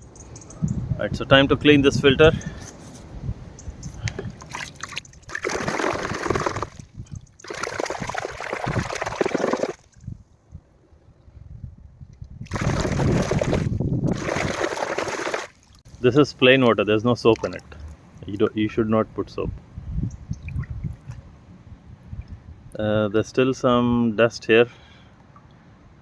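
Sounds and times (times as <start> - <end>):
running water splashing: 3.9 - 10.0, 12.4 - 18.7.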